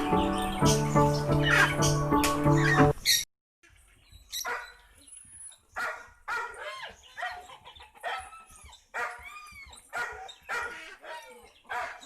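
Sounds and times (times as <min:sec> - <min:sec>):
dog barking: 0:04.4 - 0:04.8, 0:05.8 - 0:12.0.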